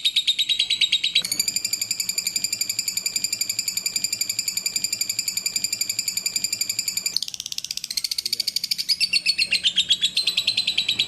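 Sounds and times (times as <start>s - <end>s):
bird chattering trill: 0.0s - 11.0s.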